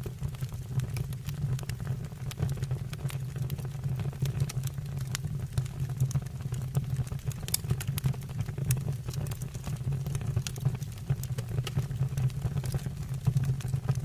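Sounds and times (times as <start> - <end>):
fire crackling and popping: 0.0 - 14.0
wood fire rumbling: 0.0 - 14.0.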